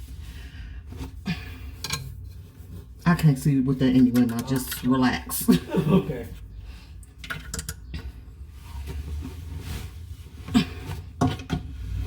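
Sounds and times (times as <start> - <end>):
faucet parts clunking on pipes: 1.8 - 2.2, 7.2 - 8.1
low rumble: 11.7 - 12.0.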